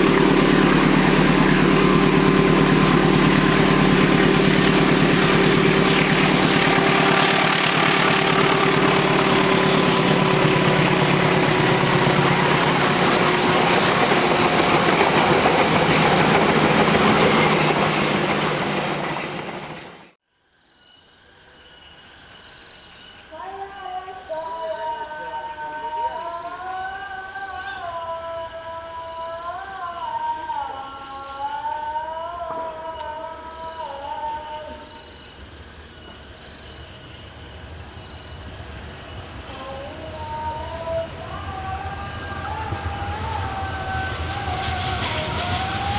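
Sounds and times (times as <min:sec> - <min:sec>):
locomotive horn blast: 0:00.0 - 0:14.9
train wheels rumbling on rails: 0:00.0 - 0:20.2, 0:35.0 - 0:45.9.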